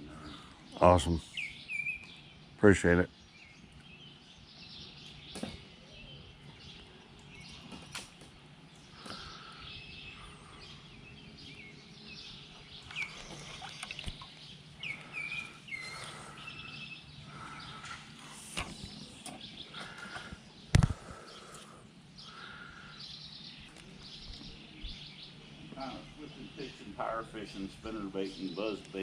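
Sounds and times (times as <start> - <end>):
birds chirping and calling: 0.0 - 29.0
low steady background noise: 0.0 - 29.0.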